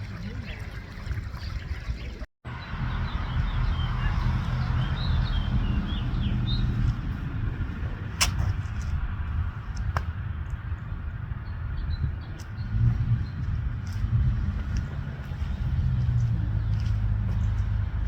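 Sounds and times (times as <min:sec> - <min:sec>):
sharp click: 0:08.2 - 0:08.5.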